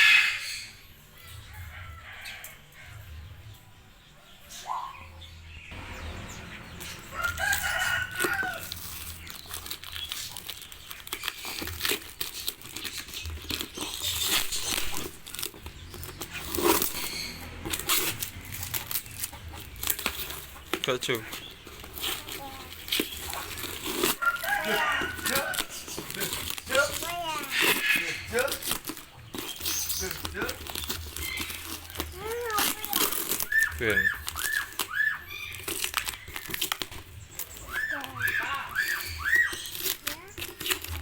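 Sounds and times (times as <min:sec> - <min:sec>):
chicken scratching on cardboard: 0:06.5 - 0:41.0
chicken crowing: 0:06.6 - 0:09.2, 0:24.0 - 0:26.1.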